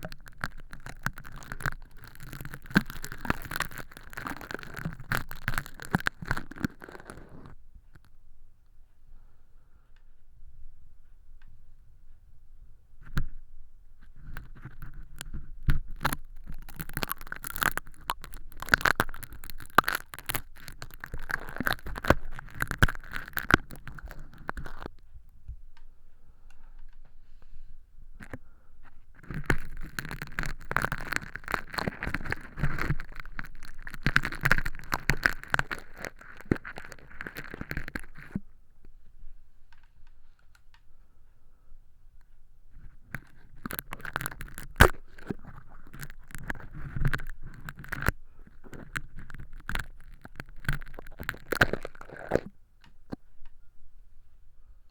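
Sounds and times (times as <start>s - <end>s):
plastic film crackling and rustling: 0.0s - 7.5s, 14.2s - 24.9s, 29.2s - 38.4s, 42.8s - 52.5s.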